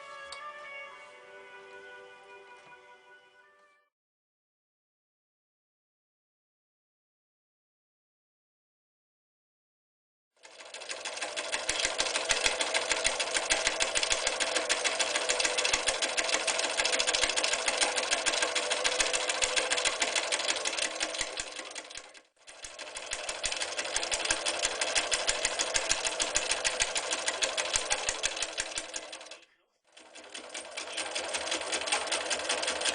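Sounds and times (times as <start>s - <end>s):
sewing machine stitching: 10.4s - 32.9s.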